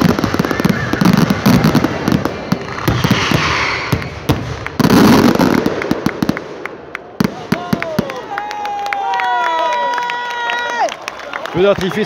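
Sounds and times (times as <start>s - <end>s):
fireworks bangs and crackles: 0.0s - 8.7s.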